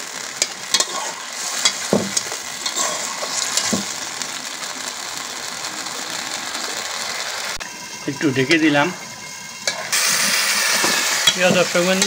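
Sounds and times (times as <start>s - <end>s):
food sizzling in oil: 0.0s - 12.0s
metal spatula scraping a pot: 0.4s - 3.9s, 9.6s - 12.0s.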